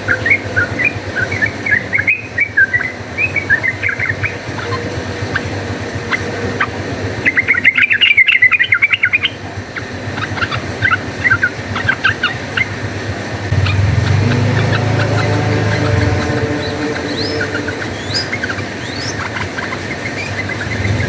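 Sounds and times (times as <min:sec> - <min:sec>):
low steady hum: 0:13.5 - 0:19.7.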